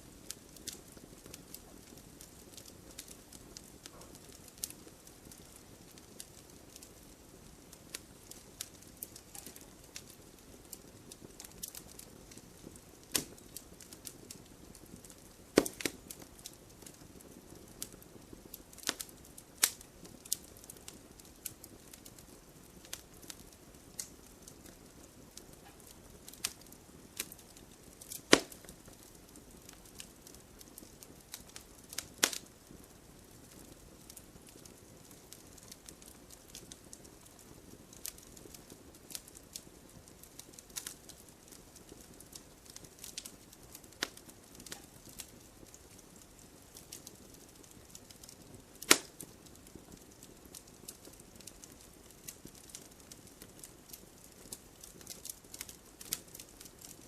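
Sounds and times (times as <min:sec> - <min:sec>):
firewood burning and crackling: 0:00.0 - 0:57.0
logs popping sharply: 0:15.6 - 0:15.9.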